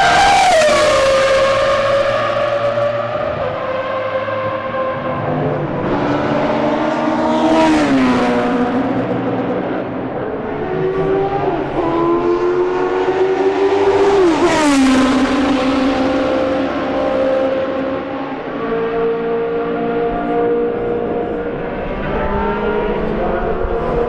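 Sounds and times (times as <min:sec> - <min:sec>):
racing cars passing at speed: 0:00.0 - 0:24.0.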